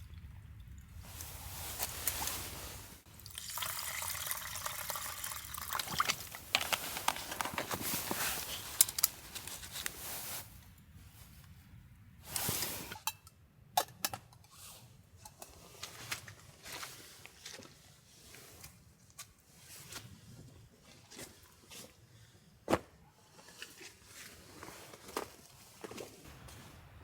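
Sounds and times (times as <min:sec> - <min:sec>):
water pouring and trickling: 0:00.0 - 0:10.2
small clicks and handling noises: 0:05.8 - 0:10.1.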